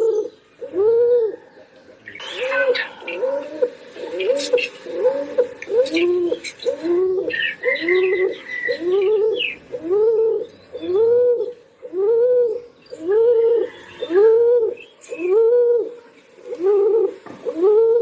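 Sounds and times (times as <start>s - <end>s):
pigeon cooing: 0.0s - 18.0s.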